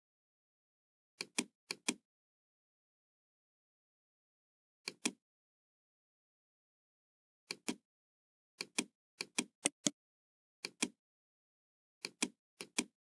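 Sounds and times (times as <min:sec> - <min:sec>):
computer mouse clicking: 0:01.2 - 0:02.0, 0:04.8 - 0:05.2, 0:07.5 - 0:07.8, 0:08.6 - 0:10.0, 0:10.6 - 0:11.0, 0:12.0 - 0:12.9.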